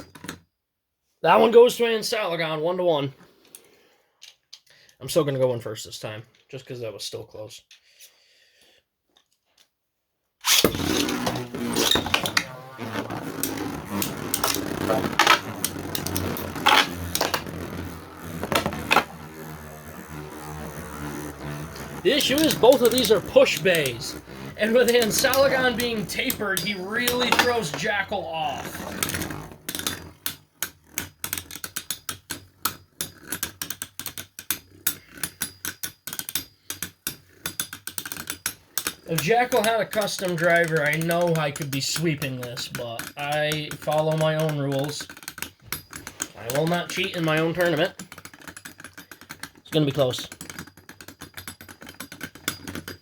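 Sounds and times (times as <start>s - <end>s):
spinning tops launched: 10.4s - 48.2s
spinning tops whirring: 10.4s - 53.0s
spinning tops clashing: 10.5s - 34.6s.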